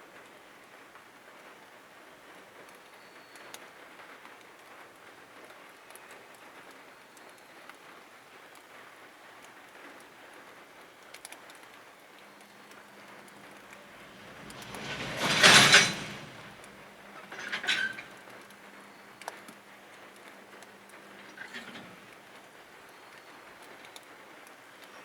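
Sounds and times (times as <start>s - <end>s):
light rain hissing: 12.5s - 18.8s.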